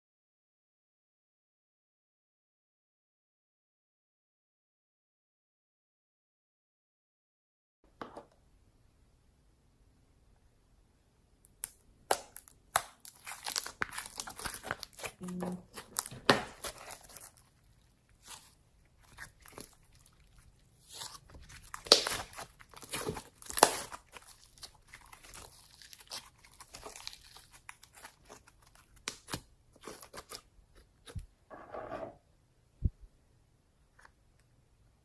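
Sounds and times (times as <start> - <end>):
slime crackling and crunching: 11.6 - 30.4.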